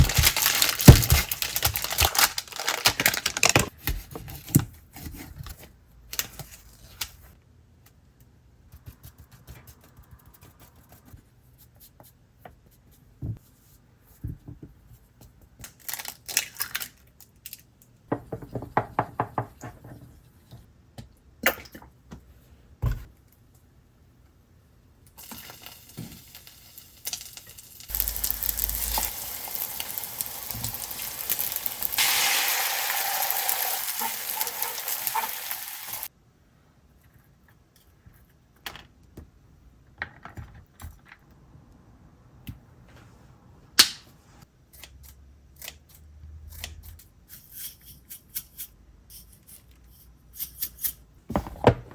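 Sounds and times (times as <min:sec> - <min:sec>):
packaging crinkling: 0:00.0 - 0:03.7, 0:27.9 - 0:36.1.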